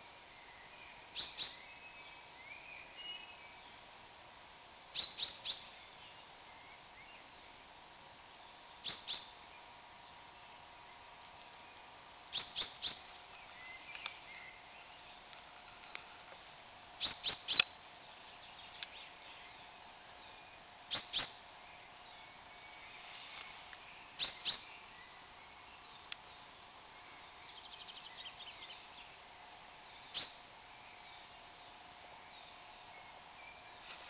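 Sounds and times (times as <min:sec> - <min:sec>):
faint bird chirps: 0:00.0 - 0:03.8, 0:04.9 - 0:15.3, 0:17.0 - 0:29.2, 0:29.8 - 0:34.0
bird call with sharp high notes: 0:05.0 - 0:05.8, 0:08.8 - 0:09.5, 0:12.3 - 0:13.2, 0:17.0 - 0:17.8, 0:20.9 - 0:21.5, 0:24.2 - 0:24.8, 0:30.1 - 0:30.5.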